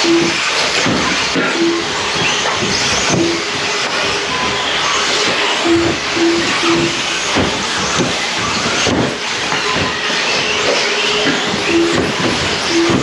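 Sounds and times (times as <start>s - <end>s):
short steady beeps: 0.0s - 0.4s, 1.5s - 2.0s, 5.6s - 7.0s, 11.6s - 13.0s
rc car motor whine: 0.0s - 13.0s.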